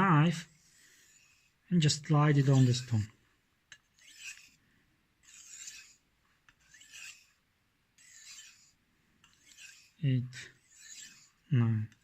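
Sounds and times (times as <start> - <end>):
knife scraping on whetstone: 0.4 - 3.1, 3.8 - 4.6, 5.2 - 7.4, 8.0 - 11.4.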